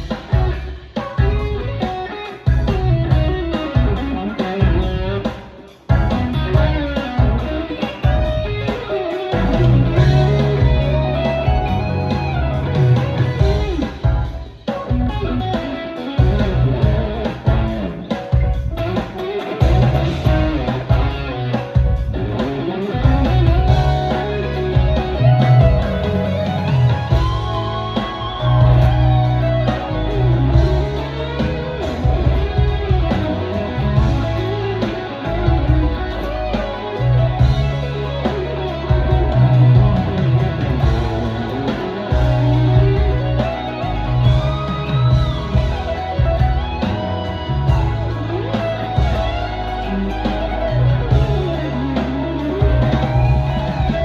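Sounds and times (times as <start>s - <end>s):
electric guitar lead lines: 0.0s - 54.0s
low bass line: 5.9s - 7.5s, 9.4s - 14.3s, 16.2s - 17.8s, 19.6s - 22.4s, 23.0s - 54.0s.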